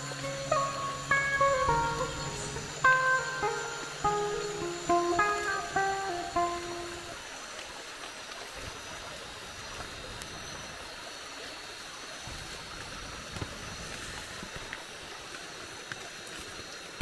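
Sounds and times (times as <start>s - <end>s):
high-pitched insect tones: 0.0s - 7.2s
rain falling in forest: 0.0s - 17.0s.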